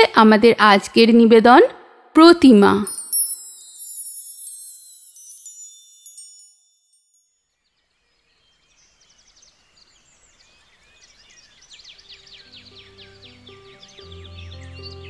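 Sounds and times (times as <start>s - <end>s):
high bright chimes: 2.2s - 7.5s
birds chirping: 8.0s - 15.0s.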